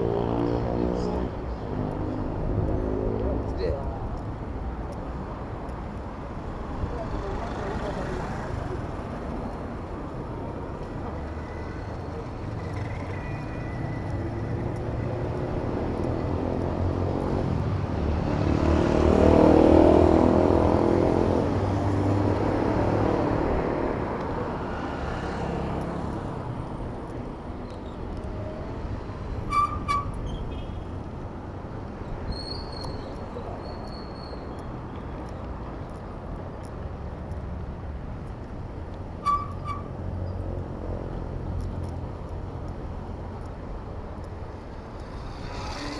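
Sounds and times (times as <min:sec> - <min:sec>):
road traffic rumble: 0:00.0 - 0:45.9
motor vehicle passing close: 0:44.1 - 0:45.9.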